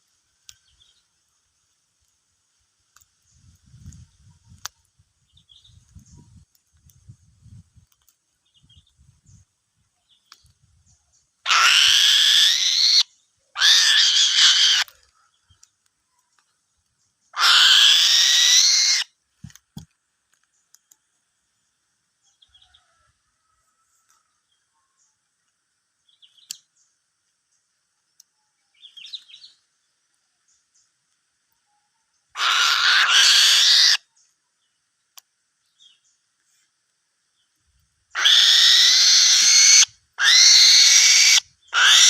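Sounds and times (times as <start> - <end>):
eagle calling: 11.5 - 15.0, 17.3 - 19.1, 32.4 - 34.0, 38.2 - 42.0.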